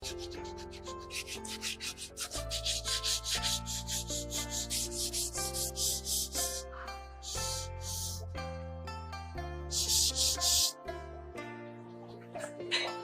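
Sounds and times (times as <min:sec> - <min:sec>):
hand sanding wood: 0:00.0 - 0:08.2, 0:09.7 - 0:10.8
background music: 0:00.0 - 0:13.0.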